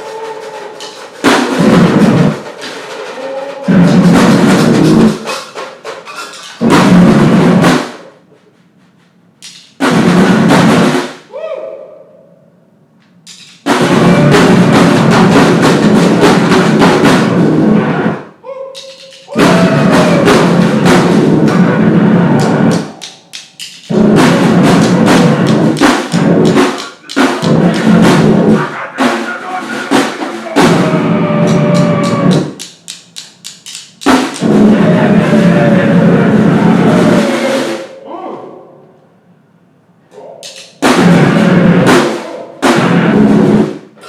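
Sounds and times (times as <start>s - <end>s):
noise-grind band playing: 0.0s - 5.9s, 9.8s - 11.2s, 13.6s - 18.2s, 19.4s - 38.0s, 40.5s - 44.0s.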